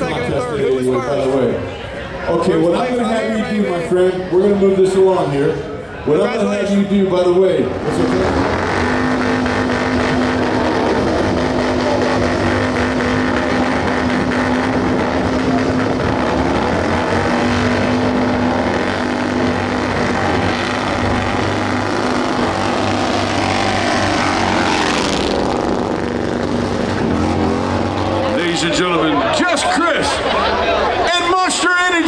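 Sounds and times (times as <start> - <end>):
motorcycle engine at high revs: 7.7 - 29.2.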